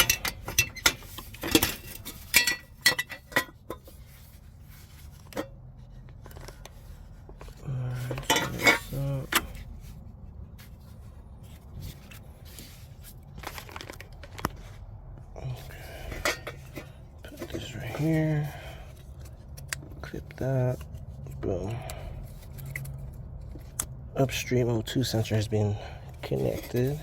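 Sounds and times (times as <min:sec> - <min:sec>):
metal tools clinking: 0:00.0 - 0:04.0, 0:08.0 - 0:09.6, 0:15.6 - 0:18.8.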